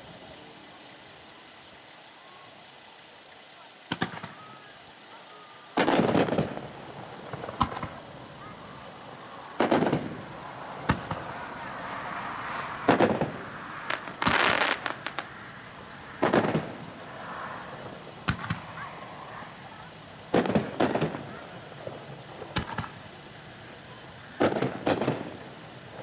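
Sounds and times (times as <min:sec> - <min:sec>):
firework crackling: 0:00.0 - 0:26.0
firework shell bangs: 0:09.4 - 0:15.4, 0:16.2 - 0:17.3, 0:18.2 - 0:18.8, 0:20.3 - 0:21.4.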